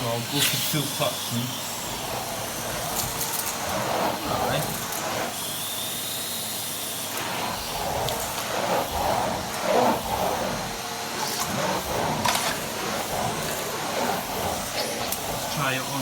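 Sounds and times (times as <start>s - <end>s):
vacuum cleaner running: 0.0s - 16.0s
floor head pushed over carpet: 7.2s - 15.6s.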